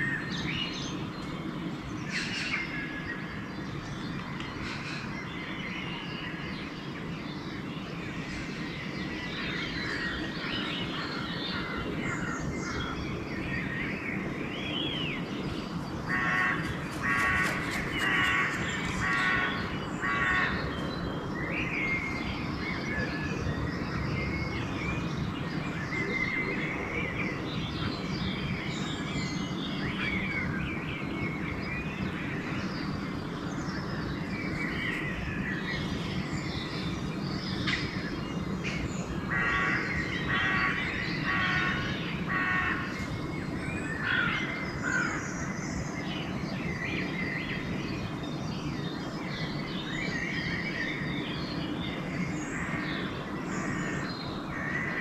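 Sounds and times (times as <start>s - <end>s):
songbirds chirping and whistling: 0.0s - 55.0s
crow cawing: 16.1s - 20.6s, 39.3s - 42.9s.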